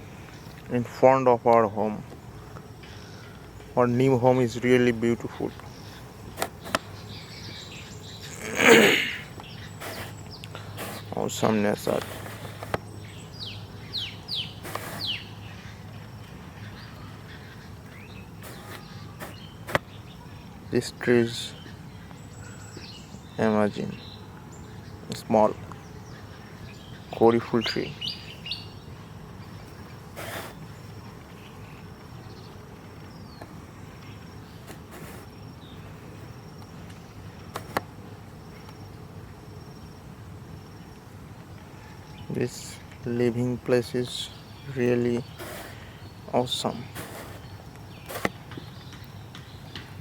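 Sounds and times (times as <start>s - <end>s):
insects trilling: 0.0s - 50.0s
rustling: 9.7s - 11.2s, 14.6s - 15.1s, 18.4s - 19.9s, 34.0s - 35.4s, 46.8s - 48.5s.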